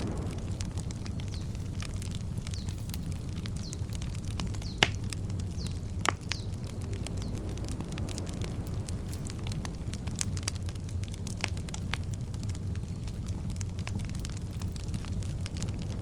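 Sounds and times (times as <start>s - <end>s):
campfire crackling and popping: 0.0s - 16.0s
bird chirping: 2.4s - 3.0s.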